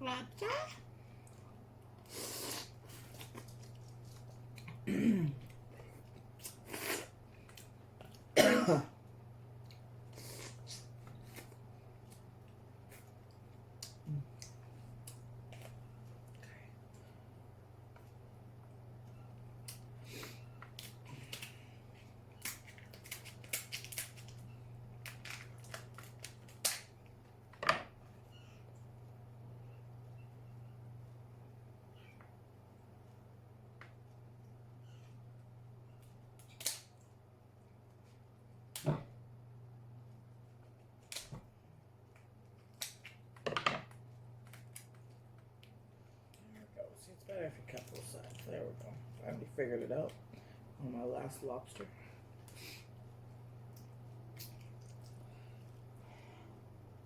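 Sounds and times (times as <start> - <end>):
woman clearing her throat: 4.8 - 5.4, 8.4 - 9.0
woman coughing: 4.8 - 5.4, 8.4 - 8.9
lobster shell cracking: 22.4 - 24.4, 25.0 - 26.9, 36.4 - 36.9.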